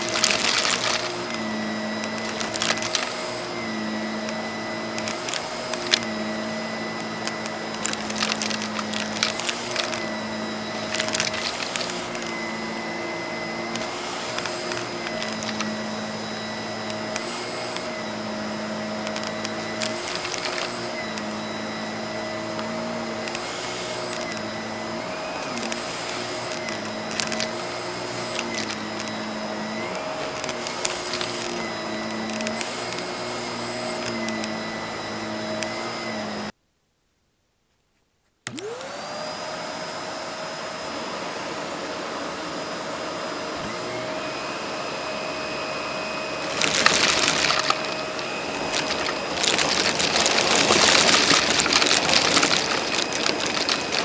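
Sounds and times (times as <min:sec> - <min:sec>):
pieces clicking up the hose: 0:00.0 - 0:03.4, 0:04.2 - 0:06.2, 0:06.9 - 0:10.1, 0:10.7 - 0:12.4, 0:13.7 - 0:15.9, 0:19.0 - 0:21.4, 0:22.5 - 0:24.5, 0:25.4 - 0:29.2, 0:29.8 - 0:33.1, 0:46.4 - 0:54.0
vacuum cleaner running: 0:00.0 - 0:36.6, 0:38.5 - 0:54.0.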